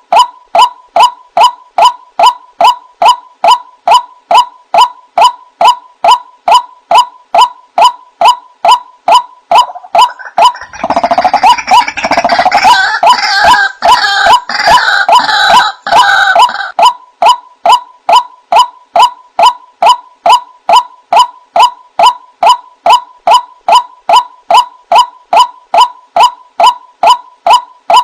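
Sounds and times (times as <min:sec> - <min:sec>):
waterhen short repeated notes: 0:00.0 - 0:28.0
waterhen harsh calls: 0:09.6 - 0:16.8.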